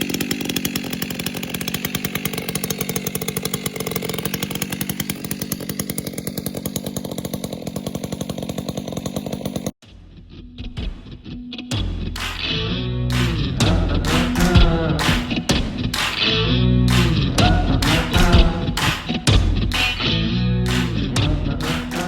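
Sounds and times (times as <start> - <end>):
chainsaw engine buzzing: 0.0 - 9.8, 12.2 - 22.0.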